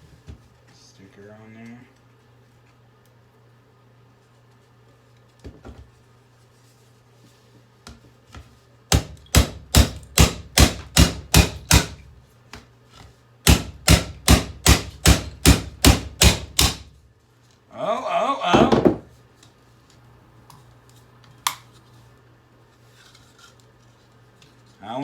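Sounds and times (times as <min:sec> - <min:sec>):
hairdryer being struck hard: 0:09.0 - 0:12.0, 0:13.5 - 0:16.9.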